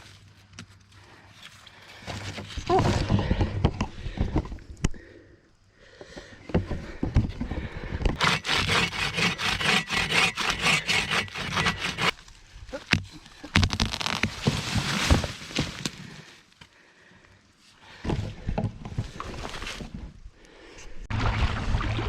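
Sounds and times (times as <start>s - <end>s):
dry wood crackling and scraping: 6.5s - 16.8s, 17.9s - 20.2s.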